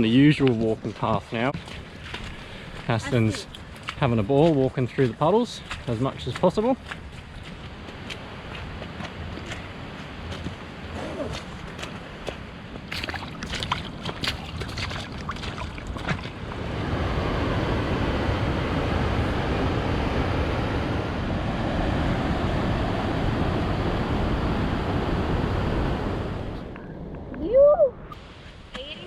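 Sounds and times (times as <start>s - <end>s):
splashing footsteps: 0.0s - 16.6s.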